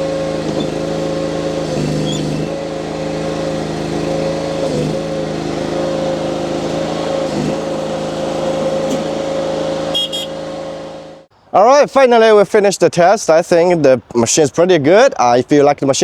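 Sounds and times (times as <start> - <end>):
loader engine running: 0.0 - 11.3.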